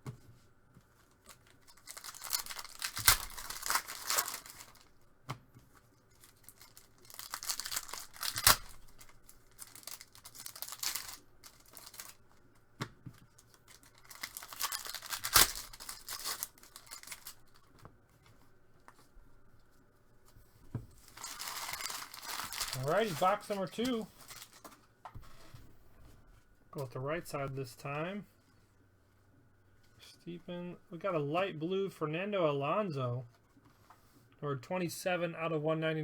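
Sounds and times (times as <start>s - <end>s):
wrapper snaps: 1.2s - 4.9s, 6.2s - 12.2s, 13.3s - 17.7s, 21.1s - 24.8s
card pack wrappers tearing: 1.2s - 5.0s, 6.1s - 12.2s, 13.3s - 17.7s, 21.0s - 24.7s.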